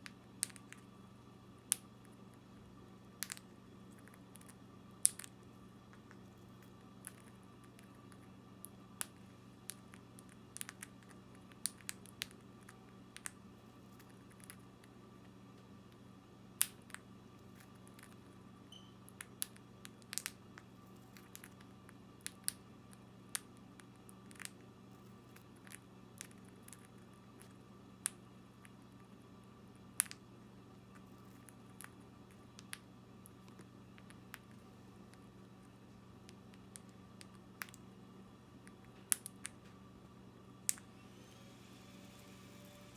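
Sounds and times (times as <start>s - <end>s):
low hum: 37.8s - 42.9s.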